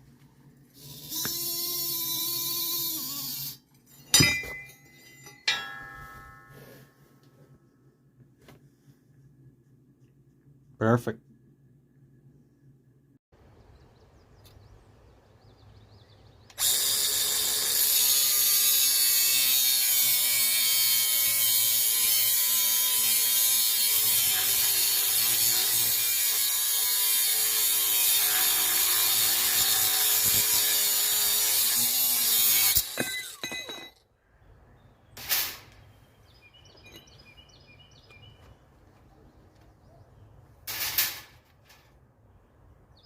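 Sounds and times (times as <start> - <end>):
electric power tool whining: 0.8 - 3.6, 16.5 - 33.8.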